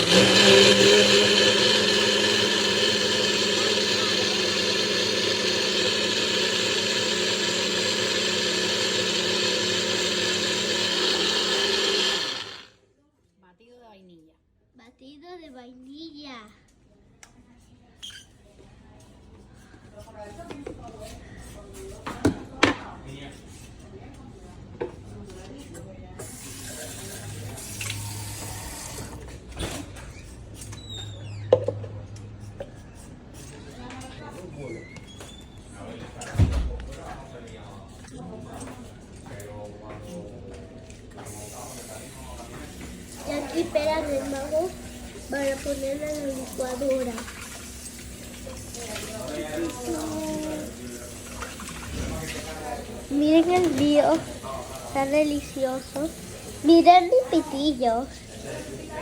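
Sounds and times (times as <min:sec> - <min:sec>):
kitchen blender running: 0:00.0 - 0:12.8, 0:26.2 - 0:29.5, 0:41.2 - 0:59.0.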